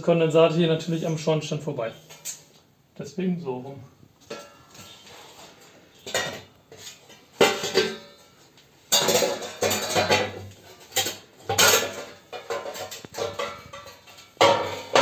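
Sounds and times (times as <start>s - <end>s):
flue pipes clattering: 4.2s - 15.0s.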